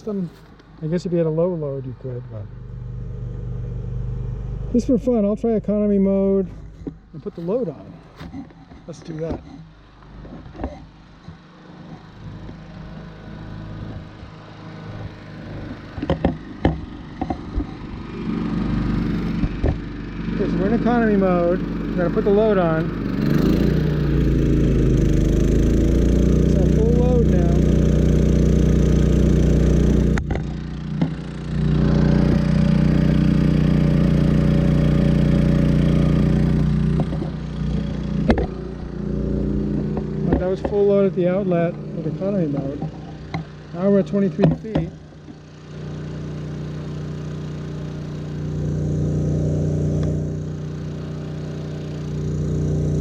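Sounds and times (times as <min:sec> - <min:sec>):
generator running: 0:00.0 - 0:53.0
sharp knocks: 0:16.0 - 0:17.8, 0:37.0 - 0:38.9, 0:44.4 - 0:45.0.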